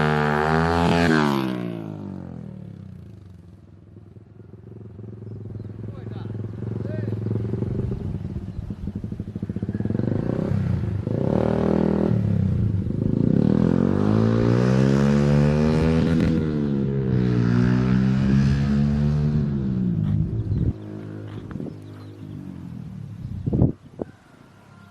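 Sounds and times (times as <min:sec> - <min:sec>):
small motorcycle engine revving: 0:00.0 - 0:23.7.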